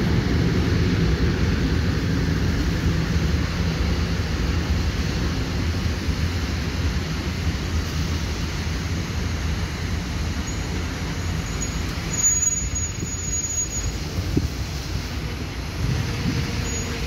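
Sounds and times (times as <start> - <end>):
train wheels rumbling on rails: 0.0 - 17.0
faint high squeal: 10.4 - 14.1, 16.6 - 17.0.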